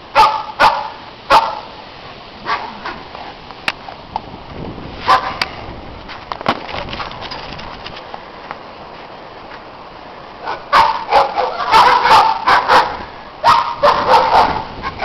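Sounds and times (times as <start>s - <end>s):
dogs barking: 0.1s - 1.8s, 2.4s - 3.0s, 5.1s - 5.4s, 10.4s - 15.0s.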